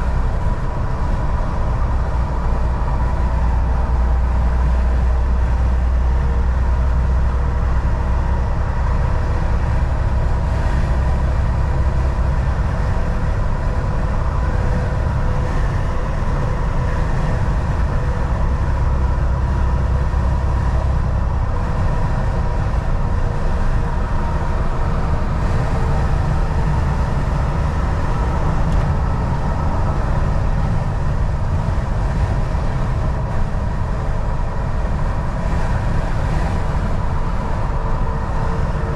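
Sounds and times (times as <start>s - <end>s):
road noise: 0.0s - 38.9s
truck engine drone: 0.0s - 38.9s.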